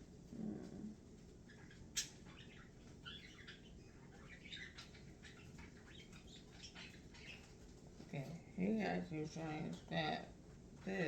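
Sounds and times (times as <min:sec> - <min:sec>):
small bird chirping softly: 0:00.3 - 0:08.5.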